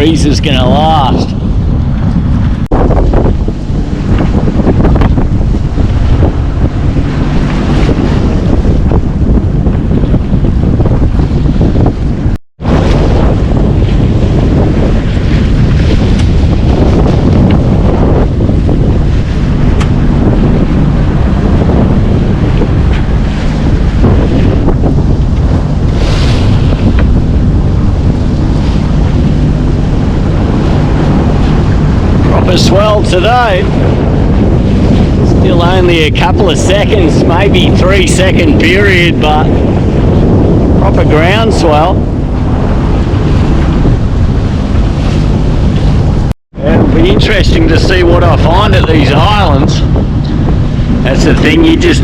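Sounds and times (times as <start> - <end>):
sea and waves rushing: 0.0 - 52.0
wind buffeting microphone: 0.0 - 52.0
water splash: 0.9 - 35.4.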